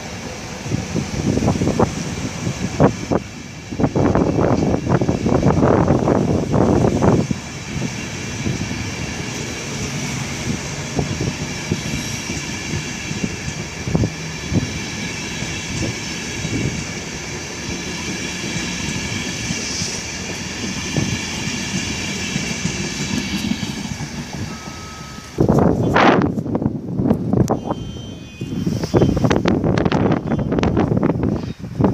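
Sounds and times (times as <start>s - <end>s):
train high whine: 0.0s - 31.9s
wheels knocking on track: 17.7s - 26.4s.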